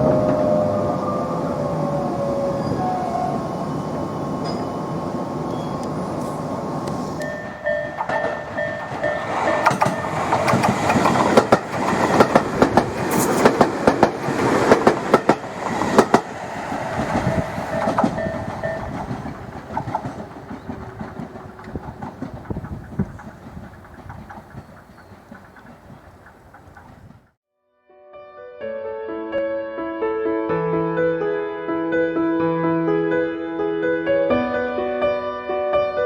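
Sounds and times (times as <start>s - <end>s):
train wheels clacking over rail joints: 5.5s - 27.4s.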